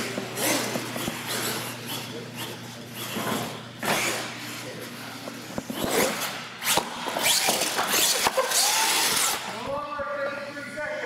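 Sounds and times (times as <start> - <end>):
electric motor whining: 5.4 - 9.6.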